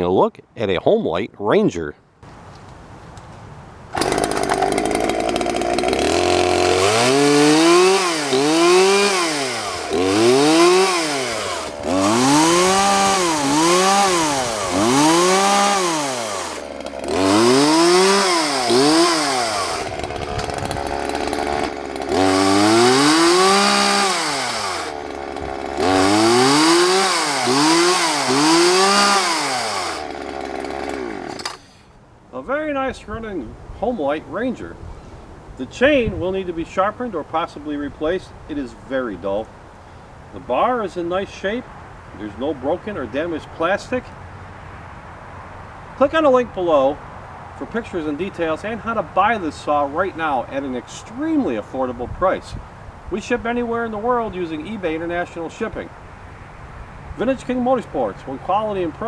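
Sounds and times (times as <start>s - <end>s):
chainsaw idling and revving: 3.9s - 31.9s.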